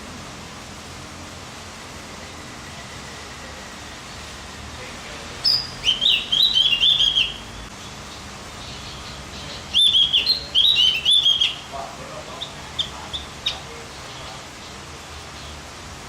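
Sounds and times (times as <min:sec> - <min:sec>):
bird singing warbled notes: 0:05.4 - 0:07.7, 0:08.6 - 0:14.8.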